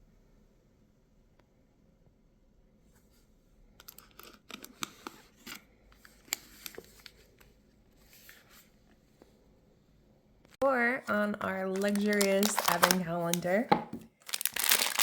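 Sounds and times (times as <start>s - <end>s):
cardboard packaging crinkling: 11.4s - 15.0s.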